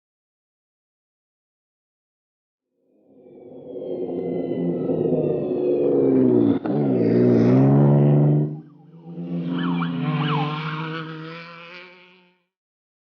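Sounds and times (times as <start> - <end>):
race truck engine pulling hard: 3.4 - 12.0.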